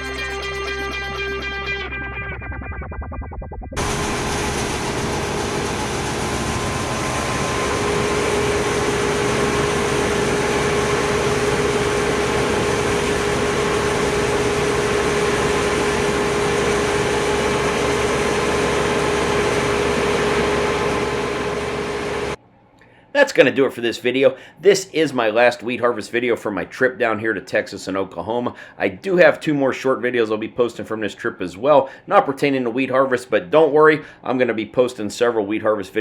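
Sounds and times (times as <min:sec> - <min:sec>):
steady machinery whine: 0:00.0 - 0:22.4
diesel engine running: 0:03.8 - 0:22.4.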